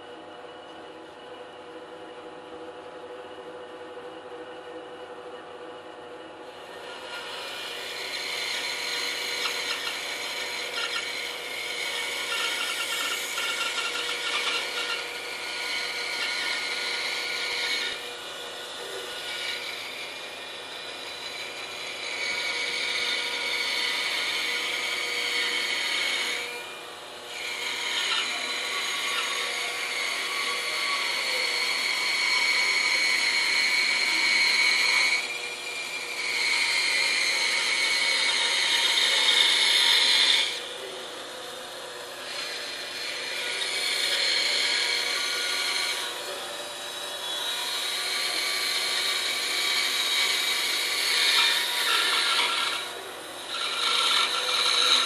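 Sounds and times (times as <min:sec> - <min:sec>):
bandsaw cutting wood: 0:06.6 - 0:55.0.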